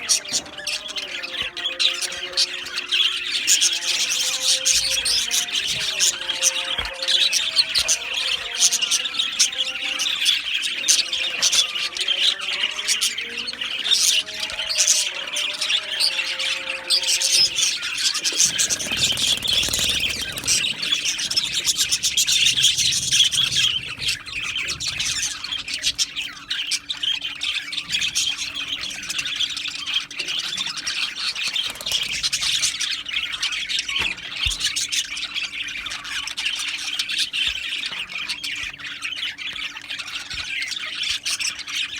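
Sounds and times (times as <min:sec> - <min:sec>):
budgerigars chattering and squawking: 0:00.0 - 0:41.9.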